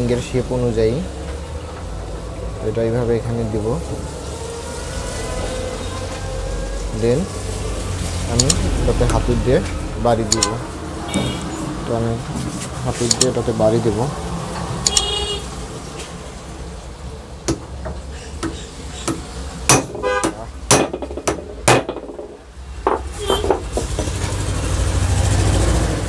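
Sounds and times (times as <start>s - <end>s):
hammer knocking on metal: 17.5s - 24.2s.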